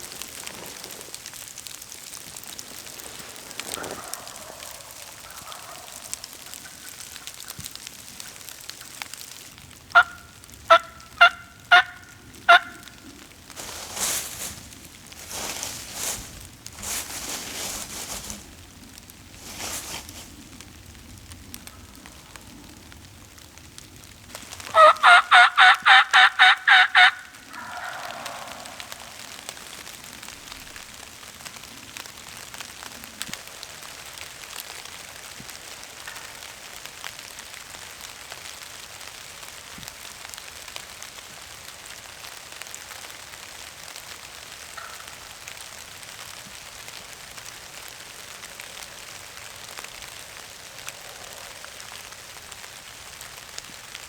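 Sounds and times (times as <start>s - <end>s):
rain pattering: 0.0s - 54.0s
turkey gobbling faintly: 3.4s - 7.6s, 10.0s - 18.6s, 24.4s - 30.6s
turkey call yelps: 3.7s - 7.6s, 10.0s - 13.0s, 24.6s - 29.9s.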